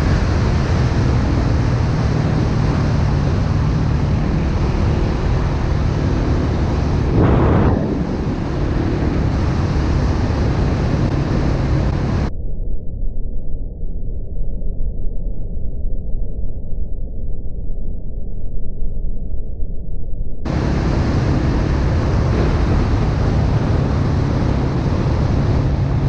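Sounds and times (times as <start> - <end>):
dirt bike engine running: 0.0 - 12.3, 20.5 - 26.0
wind rushing over microphone: 0.0 - 12.3, 20.5 - 26.0.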